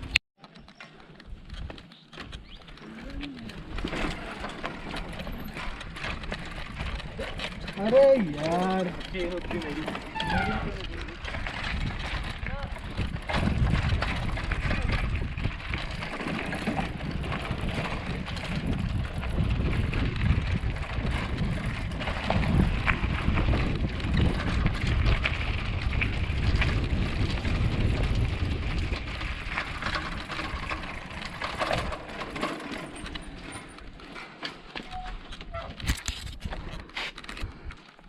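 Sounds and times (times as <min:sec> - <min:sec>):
bike rattling and clicking: 0:00.0 - 0:38.0
bicycle tyres crunching on rocks: 0:00.8 - 0:38.0
wind rumble on microphone: 0:01.2 - 0:34.0.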